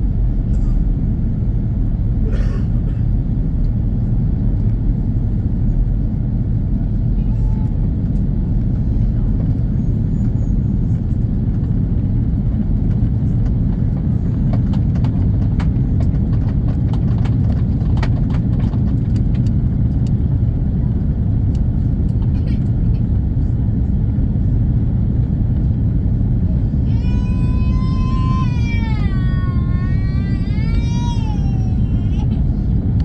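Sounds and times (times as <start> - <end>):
airplane cabin rumble: 0.0 - 33.0.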